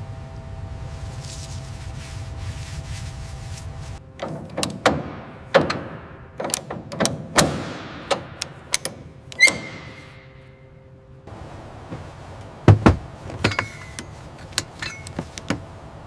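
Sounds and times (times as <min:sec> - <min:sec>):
steady low hum: 0:00.0 - 0:16.0
sharp ringing knocks: 0:12.7 - 0:15.6.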